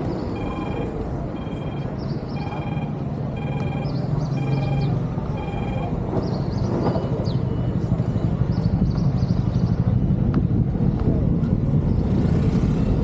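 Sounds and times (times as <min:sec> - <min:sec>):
low rumble of traffic: 0:00.0 - 0:13.0
electronic beep: 0:00.2 - 0:06.0.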